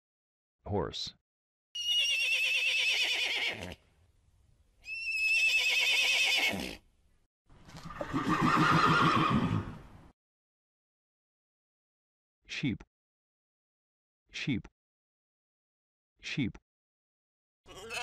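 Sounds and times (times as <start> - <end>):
horse whinnying: 1.8 - 3.8, 4.8 - 6.8, 7.8 - 9.8, 17.7 - 18.0.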